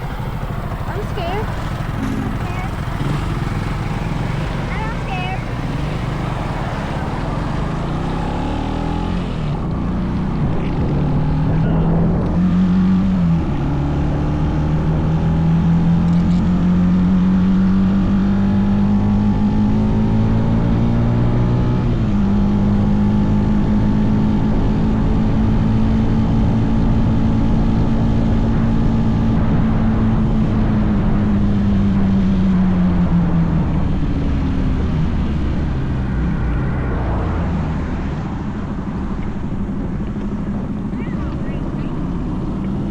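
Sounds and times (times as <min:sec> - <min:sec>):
small motorbike engine running: 0:00.0 - 0:17.0, 0:39.3 - 0:42.9
wind and road noise: 0:00.0 - 0:42.9.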